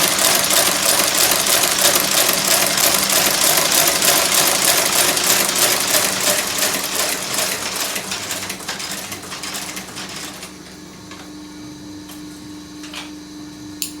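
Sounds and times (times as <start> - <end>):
stitching machine clatter: 0.0 - 11.2.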